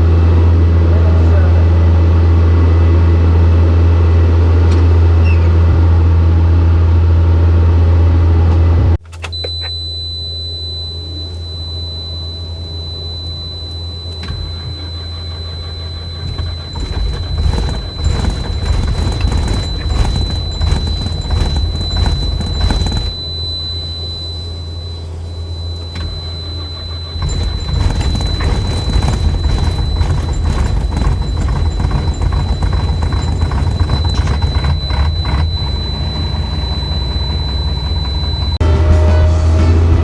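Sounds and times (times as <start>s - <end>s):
high whine: 9.1s - 40.0s
heavy vehicle engine droning: 11.2s - 40.0s.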